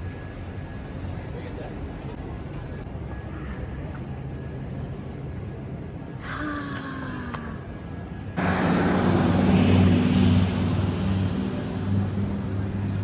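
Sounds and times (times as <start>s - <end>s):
engine running: 8.3s - 13.0s.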